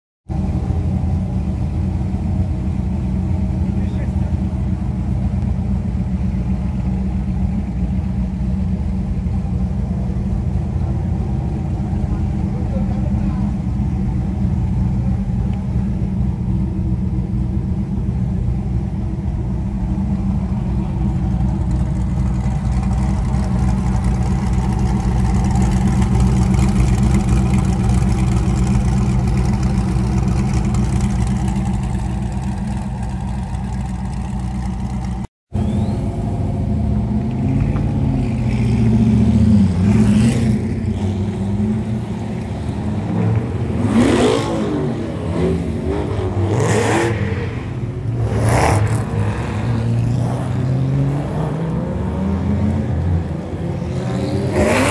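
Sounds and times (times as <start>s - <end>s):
race car engine revving: 20.4s - 54.9s.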